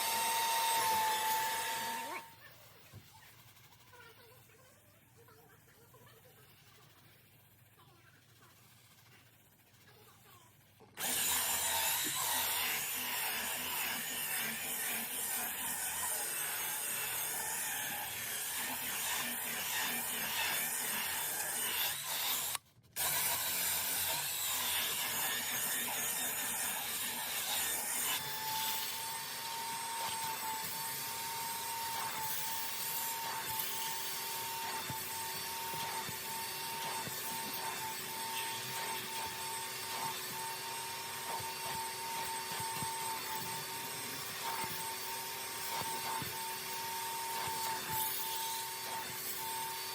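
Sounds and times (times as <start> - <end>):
machine motor whining: 0.0 - 2.3, 11.0 - 49.9
scrubbing upholstery: 29.6 - 49.2.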